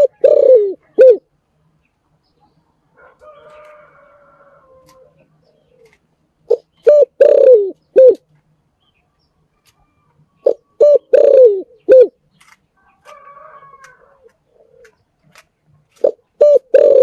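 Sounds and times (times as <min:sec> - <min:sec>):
dove cooing: 0:00.0 - 0:01.3, 0:03.0 - 0:08.2, 0:10.4 - 0:12.2, 0:13.0 - 0:15.0, 0:15.9 - 0:17.0.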